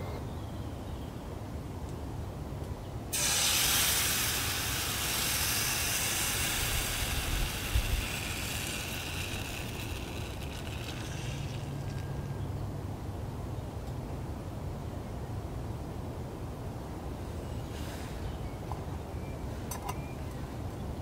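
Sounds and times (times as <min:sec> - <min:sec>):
steady hiss: 0:03.1 - 0:12.4.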